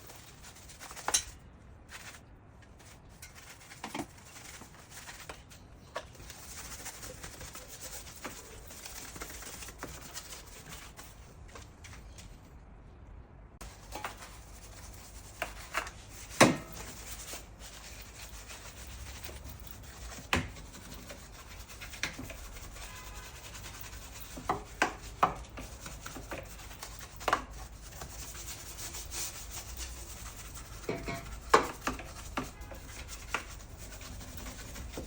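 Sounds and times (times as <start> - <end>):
scrubbing rustle: 0.0 - 12.2.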